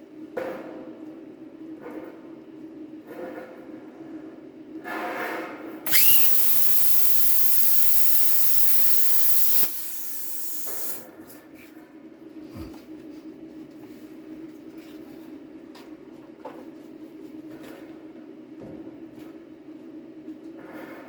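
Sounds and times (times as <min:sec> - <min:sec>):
compressed air hissing: 0:05.9 - 0:11.0.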